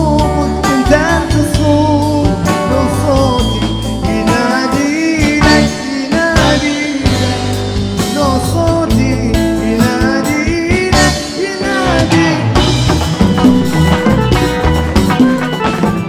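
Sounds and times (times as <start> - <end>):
bass: 0.0 - 16.0
drums: 0.0 - 16.0
live band music: 0.0 - 16.0
sliding melody: 0.1 - 16.0.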